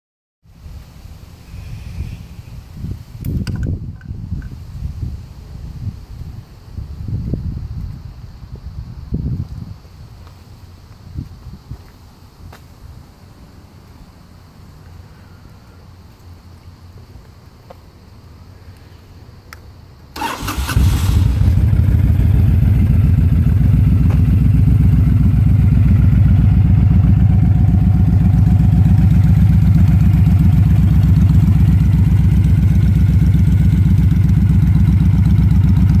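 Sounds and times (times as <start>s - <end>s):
motorcycle engine starting and idling: 20.1s - 36.0s.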